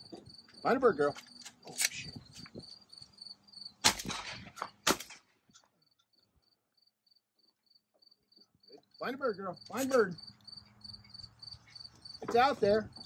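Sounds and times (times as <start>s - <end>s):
crickets chirping: 0.0s - 3.8s, 5.5s - 13.0s
shotgun shots: 3.8s - 5.3s.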